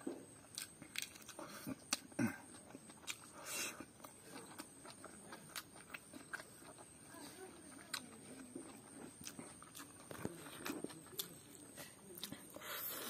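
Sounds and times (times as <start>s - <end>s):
breathy hiss: 12.6s - 13.0s.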